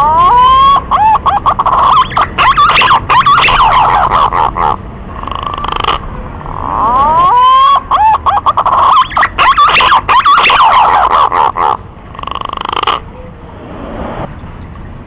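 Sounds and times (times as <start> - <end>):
pigeon warbling whistles: 0.0 - 4.8, 6.7 - 11.8.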